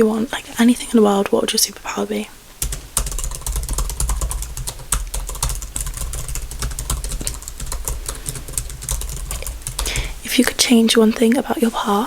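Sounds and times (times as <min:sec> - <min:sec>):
typing on computer keyboard: 0:02.6 - 0:10.2.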